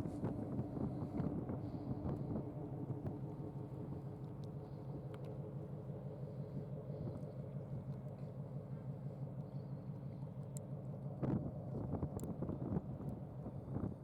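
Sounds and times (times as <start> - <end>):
ship engine drone: 0.0 - 11.8.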